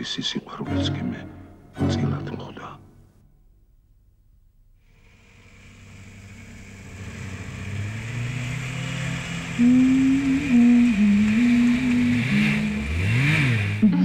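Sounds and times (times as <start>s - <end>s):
car engine and road noise: 4.8s - 14.0s
loud held tone shifting pitch: 5.3s - 14.0s.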